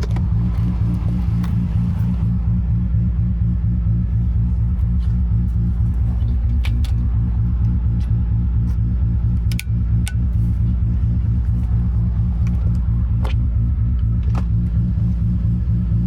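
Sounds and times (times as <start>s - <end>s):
car engine running at low revs: 0.0s - 16.0s.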